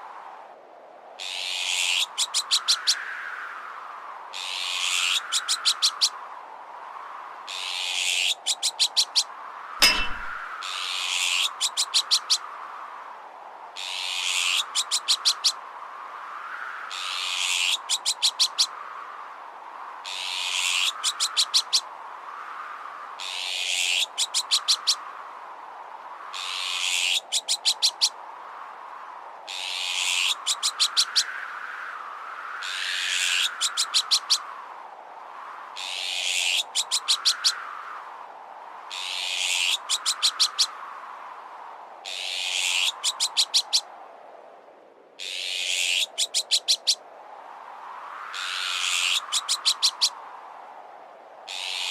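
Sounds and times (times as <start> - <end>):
metallic clank: 9.8 - 10.5
magpie alarm calls: 45.2 - 47.0.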